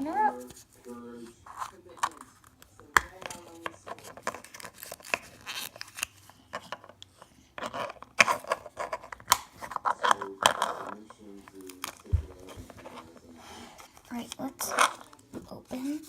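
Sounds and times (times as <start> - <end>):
plastic packaging tearing and crinkling: 3.2 - 6.3, 7.7 - 12.5.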